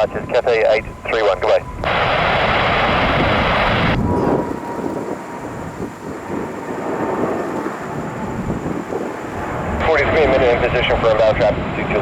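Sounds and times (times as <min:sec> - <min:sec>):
jet aircraft rumble: 0:00.0 - 0:12.0
radio static hiss: 0:00.1 - 0:04.0, 0:09.8 - 0:12.0.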